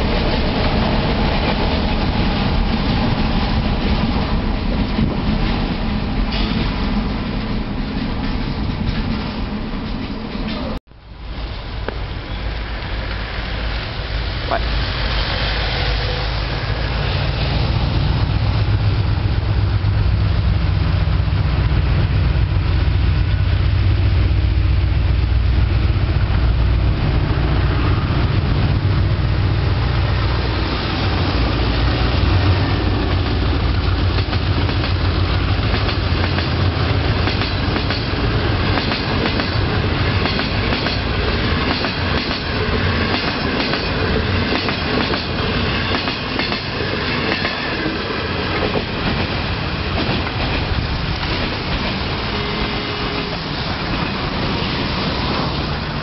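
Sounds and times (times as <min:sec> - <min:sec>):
locomotive engine drone: 0:11.3 - 0:41.7
train wheels clattering over rail joints: 0:33.8 - 0:52.2.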